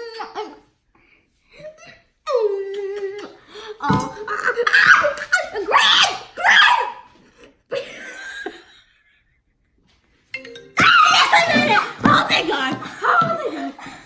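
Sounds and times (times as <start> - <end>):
children laughing: 10.8 - 14.0.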